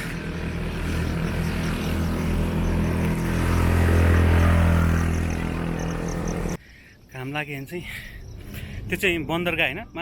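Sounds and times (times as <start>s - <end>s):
engine drone passing by: 0.0s - 6.6s.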